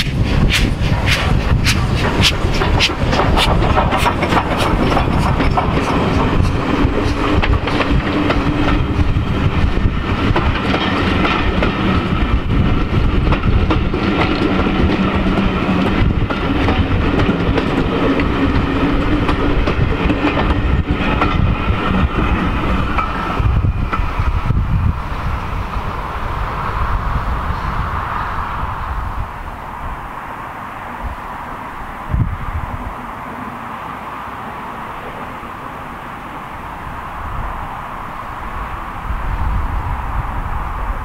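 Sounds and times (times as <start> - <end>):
wheels clicking over rail joints: 0.0 - 24.8
railway coaches rumbling on track: 0.0 - 41.0.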